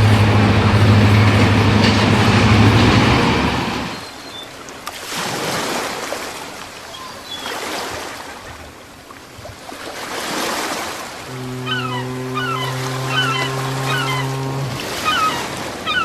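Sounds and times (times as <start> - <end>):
steady low hum: 0.0 - 4.0
waves breaking: 0.0 - 16.0.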